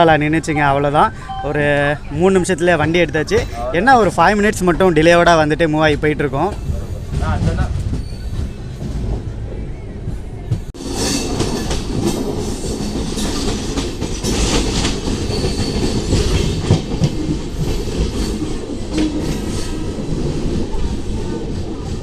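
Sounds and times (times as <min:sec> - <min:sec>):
train wheels clattering over rail joints: 0:11.0 - 0:22.0.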